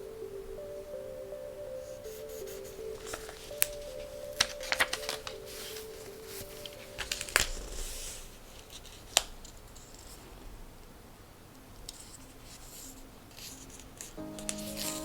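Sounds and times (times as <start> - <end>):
paper rustling and sliding: 3.0 - 9.0.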